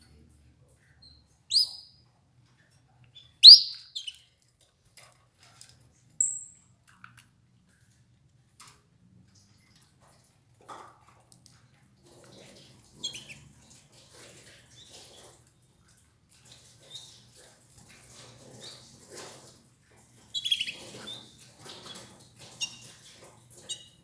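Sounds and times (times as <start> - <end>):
canaries chirping: 0.9 - 2.1, 3.1 - 4.2, 12.9 - 13.5, 20.2 - 24.0
soft rustling and pecking: 4.0 - 24.0.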